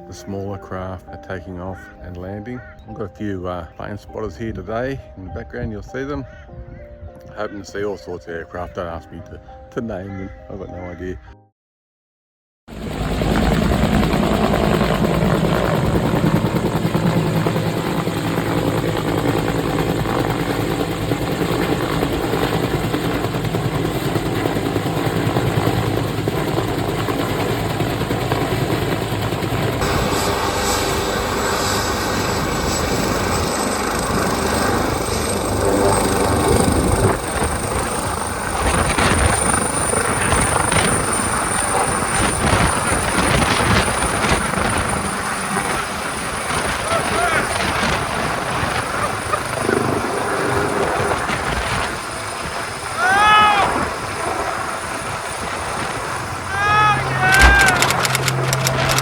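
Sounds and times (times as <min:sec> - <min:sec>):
helicopter rotor and engine: 0:12.7 - 0:59.0
high turbine whine: 0:12.8 - 0:43.2.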